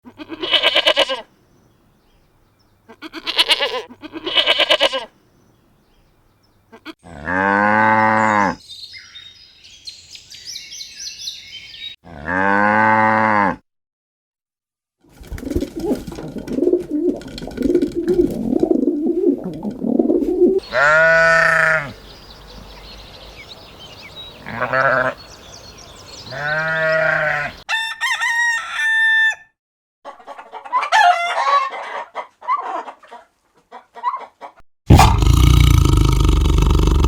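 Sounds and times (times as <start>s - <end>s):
farm animal calls: 0.1s - 1.3s, 2.8s - 5.1s, 6.6s - 8.6s, 20.5s - 22.1s, 24.4s - 25.3s, 26.2s - 27.7s
cow mooing: 7.0s - 8.6s, 12.0s - 13.6s.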